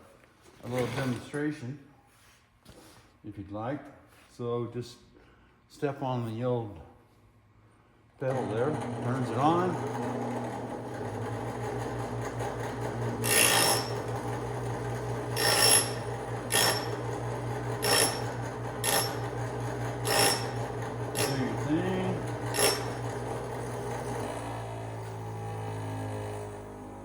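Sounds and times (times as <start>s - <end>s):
bench grinder humming: 8.2s - 27.0s
drill bit grinding rasp: 8.4s - 26.9s.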